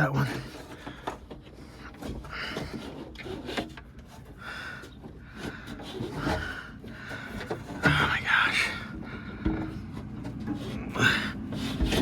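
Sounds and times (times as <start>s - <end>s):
glass rubbing and scraping: 5.3s - 8.8s, 9.7s - 12.0s.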